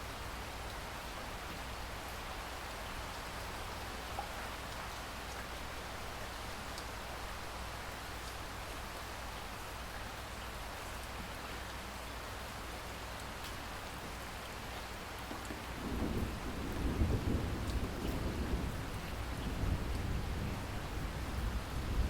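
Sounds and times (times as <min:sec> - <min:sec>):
steady rain with drop ticks: 0:00.0 - 0:22.0
low thunder roll: 0:15.7 - 0:22.0.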